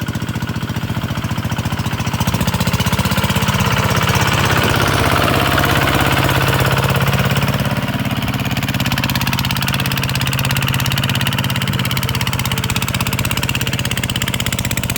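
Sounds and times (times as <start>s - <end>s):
diesel engine running: 0.0s - 14.9s.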